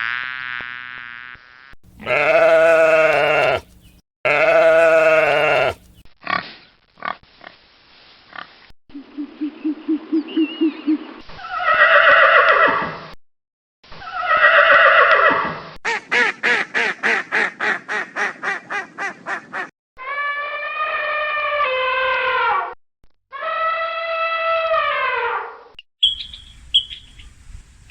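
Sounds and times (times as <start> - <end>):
fast pulsed animal calls: 1.9 - 6.0
long falling animal calls: 2.0 - 3.7, 4.3 - 5.9.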